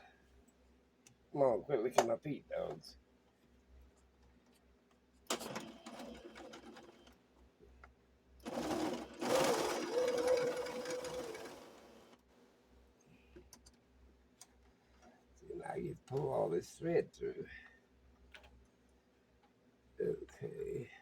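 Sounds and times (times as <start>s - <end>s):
sewing machine stitching: 5.3s - 7.1s, 8.4s - 12.2s.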